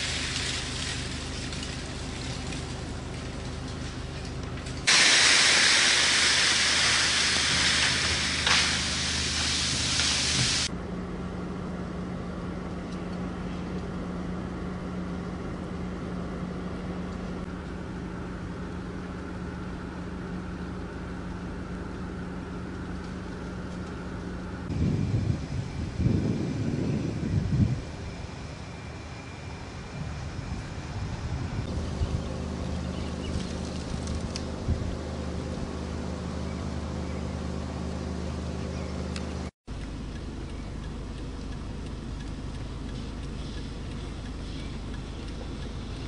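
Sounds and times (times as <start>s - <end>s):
freezing rain hissing: 0.0s - 10.7s
vehicle engines idling: 0.0s - 46.0s.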